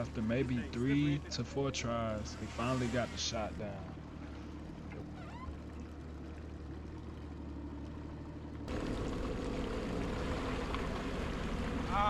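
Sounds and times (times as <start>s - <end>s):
low engine hum: 0.0s - 12.0s
water sloshing: 0.0s - 12.0s.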